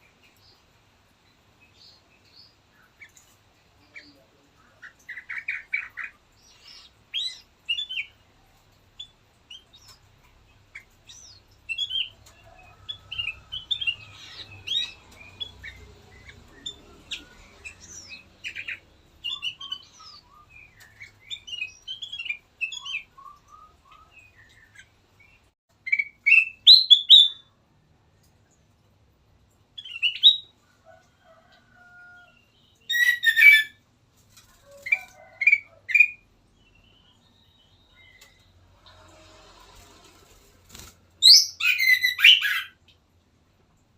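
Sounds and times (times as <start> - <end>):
bulbul chirping and whistling: 41.3 - 42.8.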